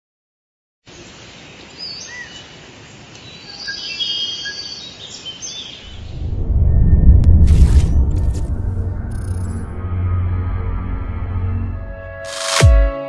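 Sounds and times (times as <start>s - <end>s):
low rumble: 5.9s - 12.2s.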